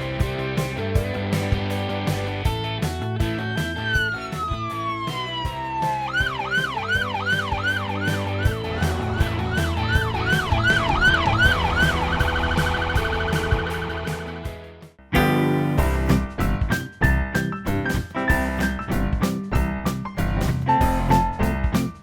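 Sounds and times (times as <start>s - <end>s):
background music with drumbeat: 0.0s - 22.0s
police car siren: 3.4s - 14.5s.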